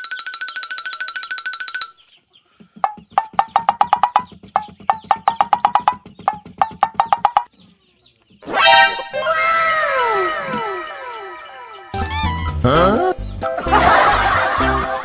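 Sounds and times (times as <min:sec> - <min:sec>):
pitched wood block knocks: 0:02.6 - 0:07.5.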